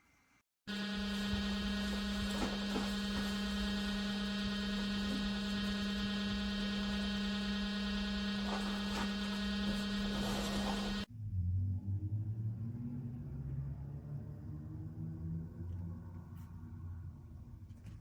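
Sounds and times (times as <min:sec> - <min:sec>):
humidifier electric hum: 0:00.7 - 0:11.1.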